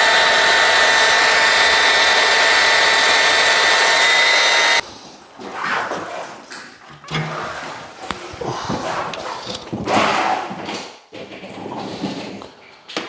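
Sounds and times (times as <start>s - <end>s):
paddle mixer drill whining: 0.0s - 4.8s.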